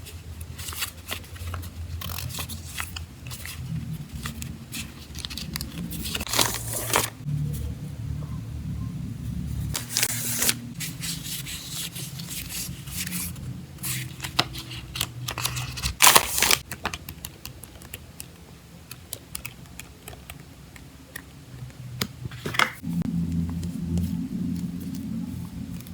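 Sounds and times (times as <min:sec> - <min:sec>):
low steady hum: 0:00.0 - 0:25.9
packaging rustling and tearing: 0:00.6 - 0:07.2, 0:13.9 - 0:17.0.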